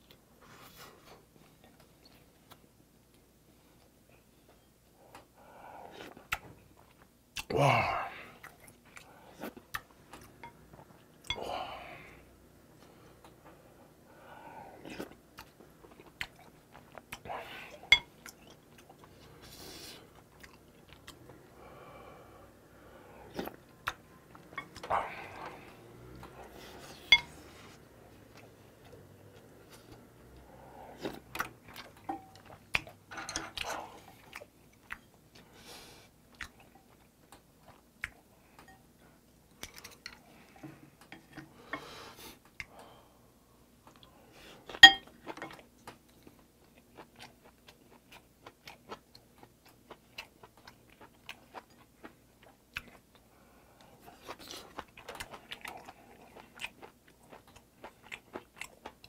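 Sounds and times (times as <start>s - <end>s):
chewing food: 14.8s - 17.2s, 17.8s - 21.5s, 23.2s - 35.6s, 36.3s - 38.8s, 43.8s - 59.0s.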